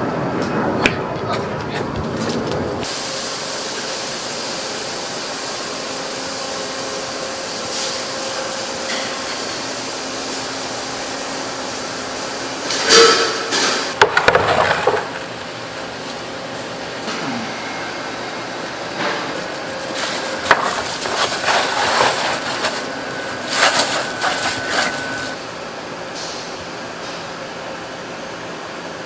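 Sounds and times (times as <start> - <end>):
hard objects knocking and clattering: 14.0 - 15.4, 19.9 - 25.3.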